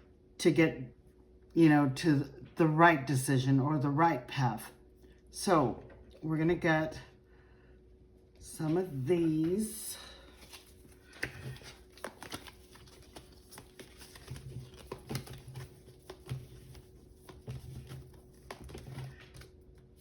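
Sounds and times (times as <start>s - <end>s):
cards tapping and flicking: 10.4s - 19.6s.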